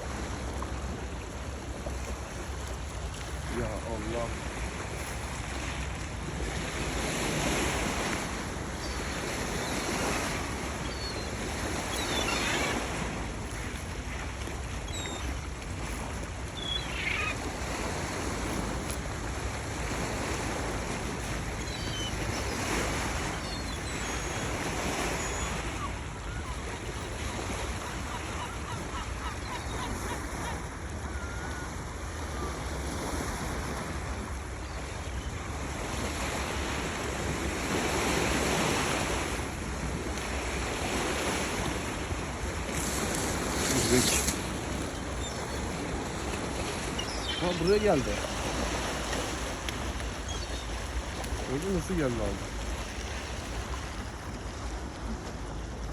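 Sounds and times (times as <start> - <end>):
sea noise: 0.0 - 55.9
wind: 0.0 - 55.9
faint gull cries: 10.8 - 13.0, 16.6 - 17.5.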